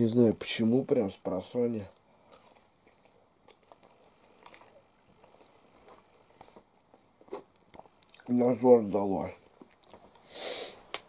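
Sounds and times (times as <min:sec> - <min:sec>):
faint chewing: 0:01.9 - 0:08.6, 0:09.3 - 0:11.0.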